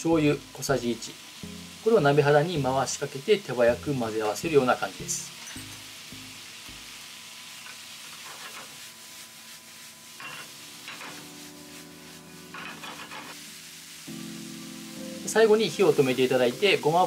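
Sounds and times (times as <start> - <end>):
stir-fry sizzling in a frying pan: 0.0 - 17.0
pan scraping: 12.4 - 13.4.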